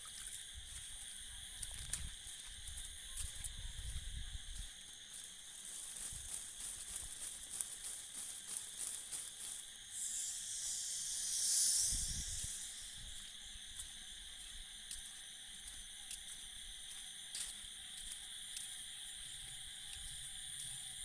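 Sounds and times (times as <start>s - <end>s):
insects chirring: 0.0s - 21.0s
hiss: 5.8s - 13.4s.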